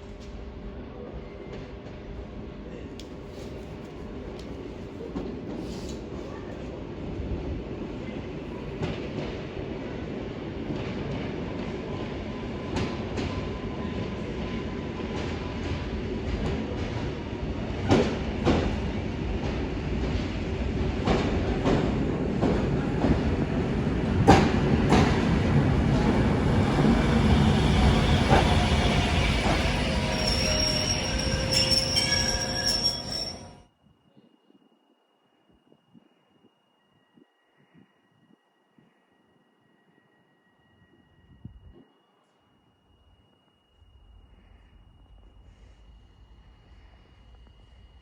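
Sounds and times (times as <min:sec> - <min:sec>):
train wheels clicking over rail joints: 0:24.2 - 0:33.6
train wheels squealing: 0:25.9 - 0:33.6.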